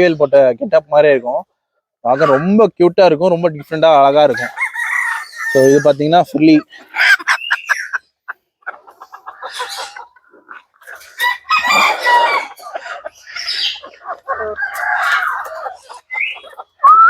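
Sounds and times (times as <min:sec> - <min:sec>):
chickens clucking: 0:00.0 - 0:17.0
rooster crowing: 0:04.4 - 0:05.9, 0:11.1 - 0:12.6.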